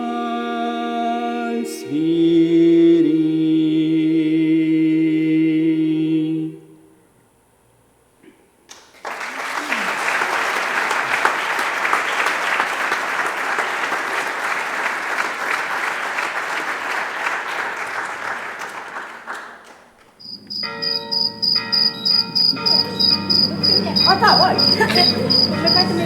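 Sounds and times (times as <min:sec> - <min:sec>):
audience applauding: 0:08.7 - 0:26.0
rhythmic high-pitched chirping: 0:20.2 - 0:26.0.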